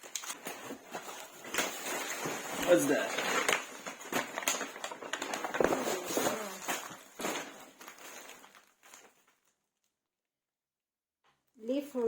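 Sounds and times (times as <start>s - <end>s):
plastic packaging crackling: 0.0s - 10.0s.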